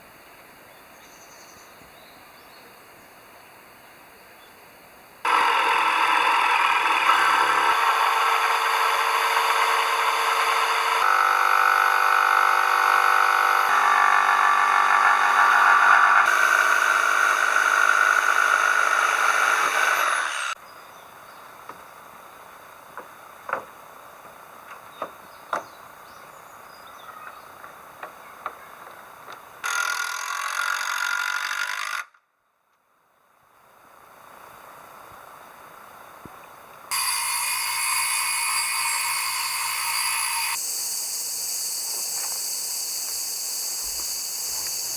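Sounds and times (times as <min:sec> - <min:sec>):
power tool running on wood: 0:05.3 - 0:20.6, 0:36.9 - 0:44.9.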